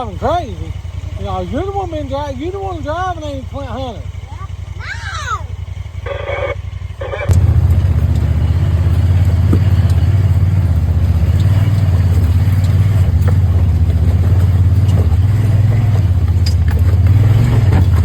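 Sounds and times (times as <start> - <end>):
engine and road drone in cab: 0.0 - 18.0
faint rattles: 0.0 - 18.0.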